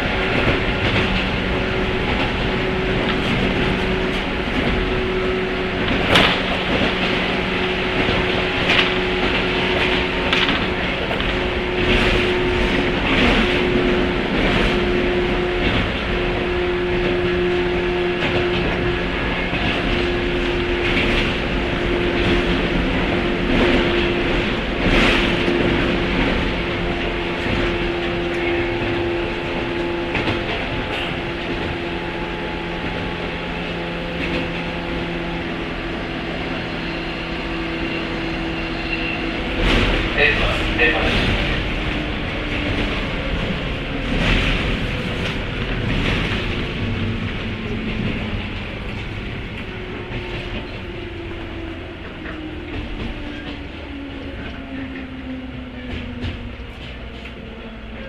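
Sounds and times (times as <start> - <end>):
train motor and gear hum: 0.0 - 58.0
wheels clacking over rail joints: 0.0 - 58.0
wheels clicking over rail joints: 0.1 - 17.1.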